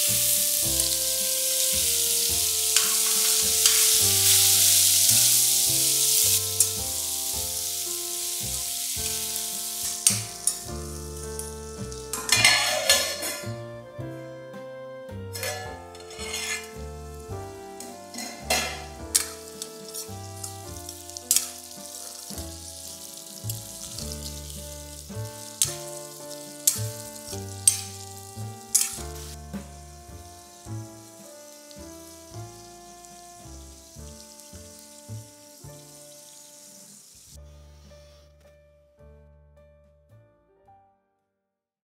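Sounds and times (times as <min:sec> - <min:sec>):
oil sizzling: 0:00.0 - 0:38.2
piano background music: 0:00.0 - 0:41.4
spoon scraping a steel pan: 0:02.7 - 0:05.0, 0:12.2 - 0:13.5, 0:15.4 - 0:16.9, 0:18.1 - 0:20.1, 0:26.6 - 0:28.0, 0:28.7 - 0:29.2.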